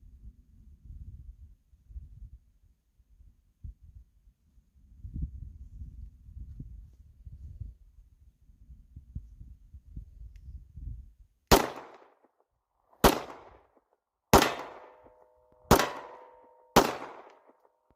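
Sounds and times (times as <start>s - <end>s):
pistol shots with echo: 11.5s - 12.2s, 13.0s - 13.7s, 14.3s - 17.6s.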